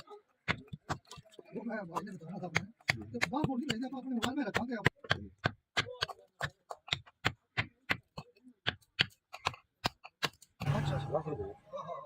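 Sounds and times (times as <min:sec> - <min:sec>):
hammer striking: 0:07.6 - 0:11.5.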